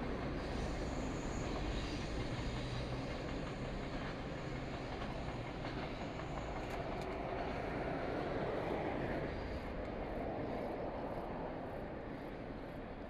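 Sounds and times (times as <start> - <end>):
steel wheels rumbling on track: 0.0 - 9.8.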